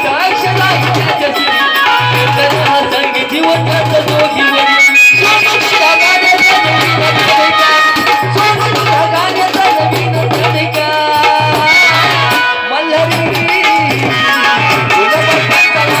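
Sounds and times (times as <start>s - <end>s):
hand-drum beats: 0.0s - 16.0s
wavering melody line: 2.1s - 9.0s.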